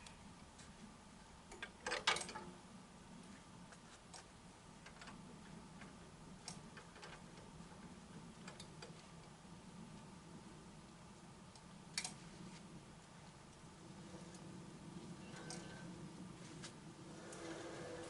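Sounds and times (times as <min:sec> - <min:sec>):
faint low hum: 0:00.0 - 0:18.0
light clicks and ticks: 0:11.5 - 0:12.2.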